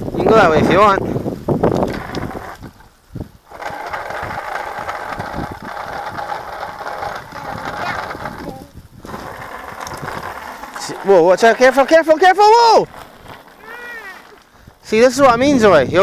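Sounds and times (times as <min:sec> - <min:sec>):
tyres rolling on path: 0:00.7 - 0:16.0
bicycle freewheel ticking: 0:01.8 - 0:15.2.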